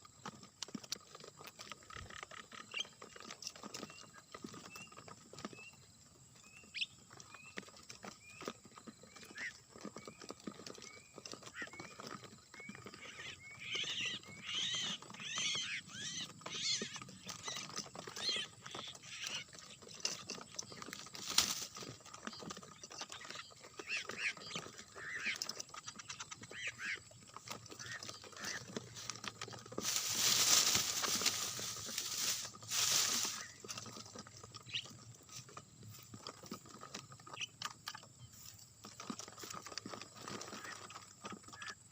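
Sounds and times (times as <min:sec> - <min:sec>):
birds chirping: 0:02.2 - 0:38.8
loud rustling: 0:29.7 - 0:33.7.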